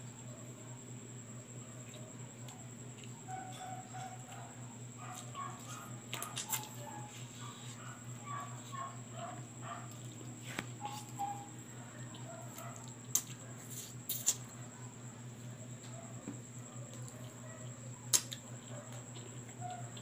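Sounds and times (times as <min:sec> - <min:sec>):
steady low hum: 0:00.0 - 0:20.0
chewing and lip-smacking: 0:12.0 - 0:13.4, 0:16.9 - 0:20.0.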